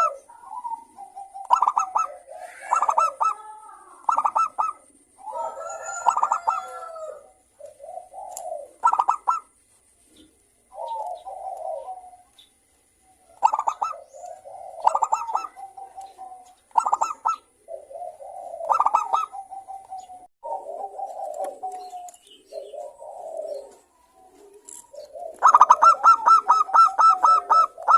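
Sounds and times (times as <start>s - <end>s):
dove cooing: 0.0s - 27.9s.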